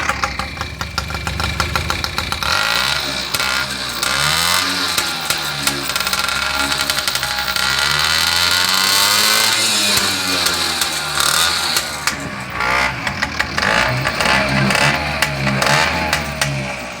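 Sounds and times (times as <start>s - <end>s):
moped engine revving: 0.0s - 17.0s.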